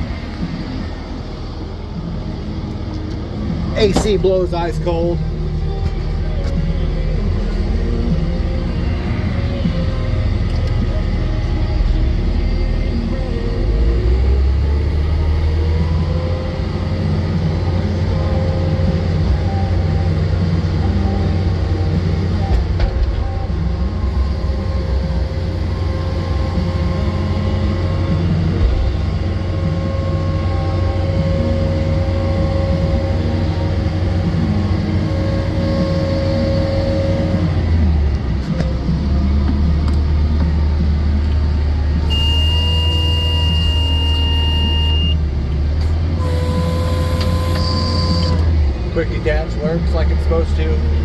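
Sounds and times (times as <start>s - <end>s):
diesel engine droning: 0.0s - 51.0s
thin whining tones: 41.9s - 45.3s, 46.2s - 48.5s.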